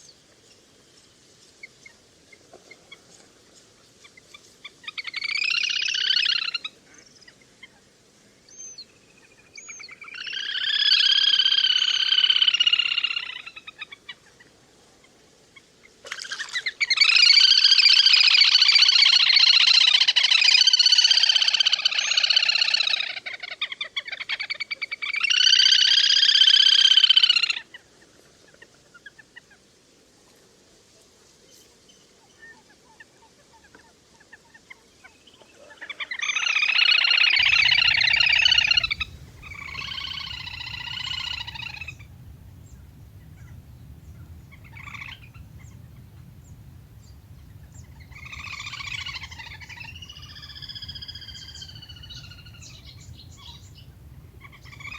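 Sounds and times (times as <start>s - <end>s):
bird whinnying trills: 37.4s - 54.9s
faint short bird notes: 37.4s - 54.9s.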